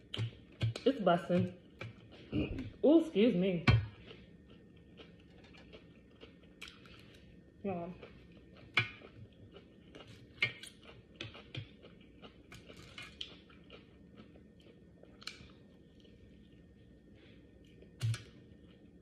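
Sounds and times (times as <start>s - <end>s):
person chewing food: 0.0s - 2.8s, 3.7s - 19.0s.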